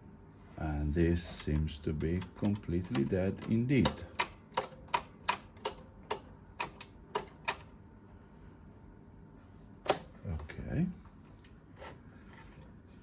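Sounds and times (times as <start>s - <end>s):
push-button switches clicking: 1.4s - 7.7s.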